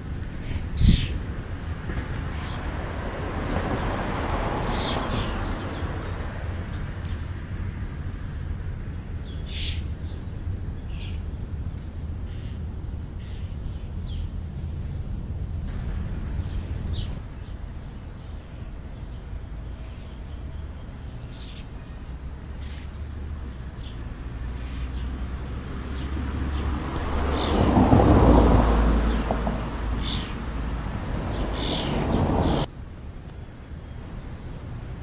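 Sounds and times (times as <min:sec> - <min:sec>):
vehicle passing: 0:00.0 - 0:12.4, 0:13.0 - 0:32.7
traffic rumble: 0:00.0 - 0:35.0
bird chirps: 0:30.0 - 0:30.4, 0:31.3 - 0:34.0.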